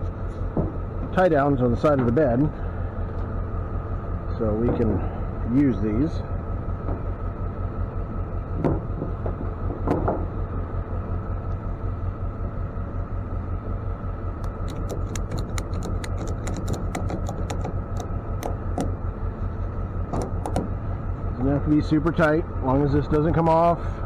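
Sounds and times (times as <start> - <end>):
low engine hum: 0.0 - 24.0
ratchet strap clicking: 14.4 - 19.1, 20.1 - 20.8
knocks: 20.2 - 20.7.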